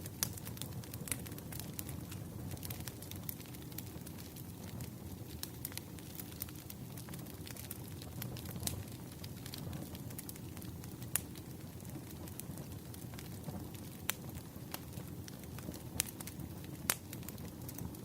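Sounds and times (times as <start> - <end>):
sharp pops of fire: 0.0 - 18.0
wood fire crackling: 0.0 - 18.0.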